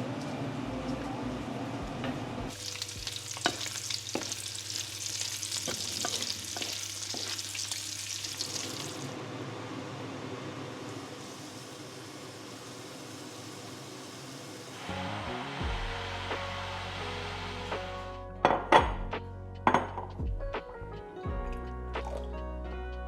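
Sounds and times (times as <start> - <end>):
food sizzling in a frying pan: 2.5 - 9.2, 10.7 - 14.9.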